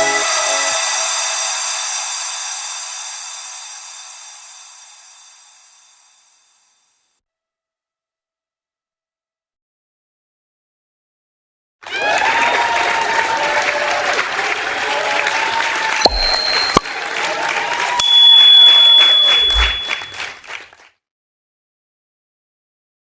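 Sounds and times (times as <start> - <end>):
crowd applause and cheering: 0.0 - 4.3, 11.8 - 20.8
sharp bell-like dings: 0.7 - 6.6, 16.1 - 17.3, 18.0 - 20.4.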